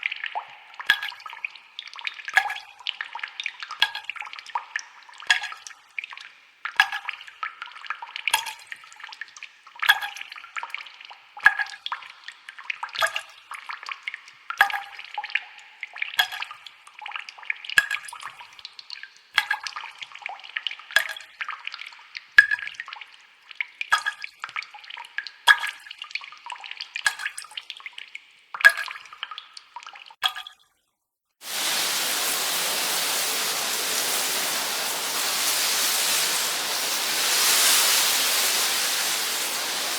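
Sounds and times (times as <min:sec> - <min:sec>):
water dripping and trickling: 0:00.0 - 0:30.8, 0:31.4 - 0:39.9
steady rushing noise: 0:31.4 - 0:39.9.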